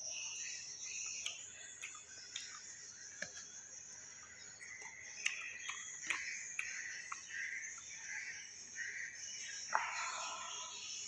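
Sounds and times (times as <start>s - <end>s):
wet mouth clicks: 1.2s - 2.6s, 4.6s - 7.3s
person chewing crunchy fruit: 1.2s - 3.6s, 4.2s - 7.9s.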